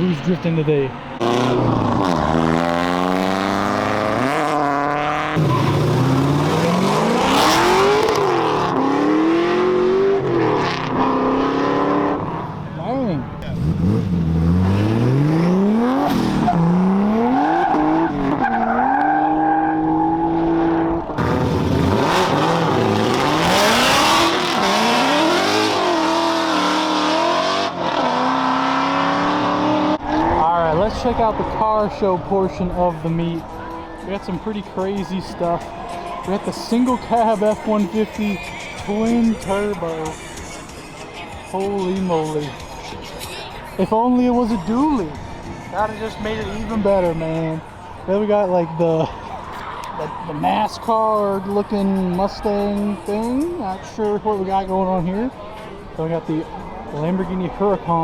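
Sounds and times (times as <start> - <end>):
car engine revving hard: 1.2 - 12.5, 13.4 - 18.4, 19.2 - 30.4.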